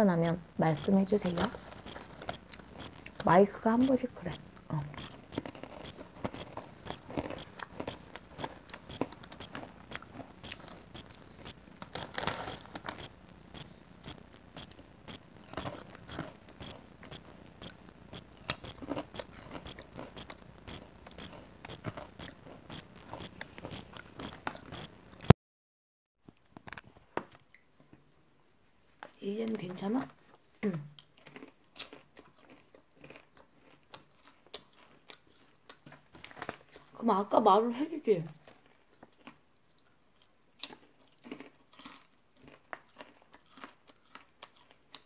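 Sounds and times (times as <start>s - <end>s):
chewing and crunching popcorn: 0.1s - 25.3s, 29.0s - 45.0s
microphone crackling and clicks: 0.2s - 25.4s.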